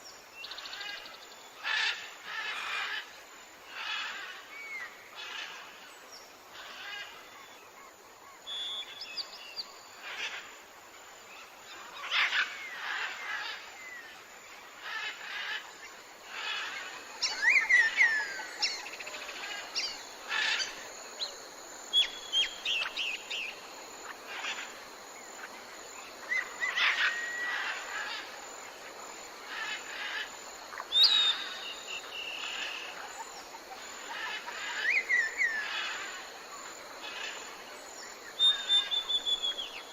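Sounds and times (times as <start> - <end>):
faint outdoor background: 0.0 - 39.9
birds chirping and whistling: 30.9 - 32.4, 38.4 - 39.8.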